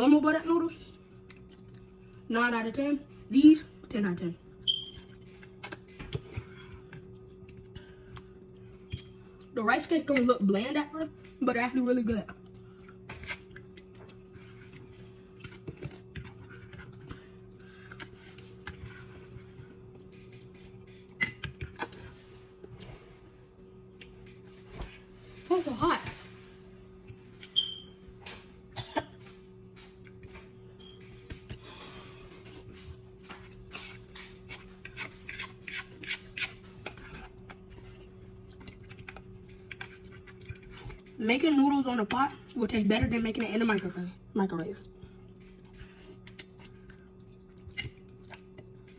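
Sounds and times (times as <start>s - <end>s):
steady low hum: 0.0s - 48.9s
eating clicks and scrapes: 12.3s - 22.2s, 32.3s - 41.2s, 45.4s - 48.9s.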